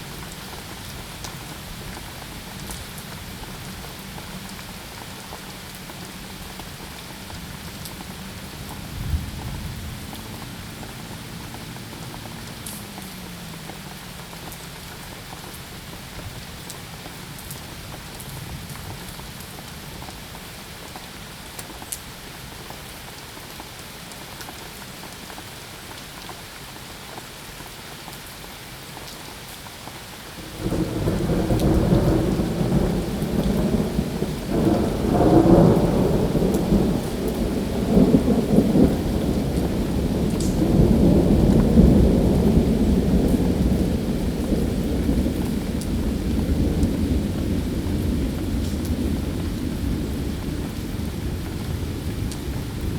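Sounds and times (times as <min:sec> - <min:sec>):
steady rain falling: 0:00.0 - 0:52.9
thunder rumbling: 0:30.4 - 0:52.9.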